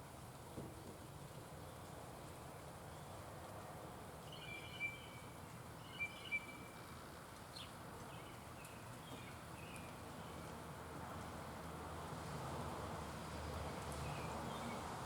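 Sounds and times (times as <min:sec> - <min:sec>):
outdoor background noise: 0:00.0 - 0:15.0
birds whistling calls: 0:04.3 - 0:06.7.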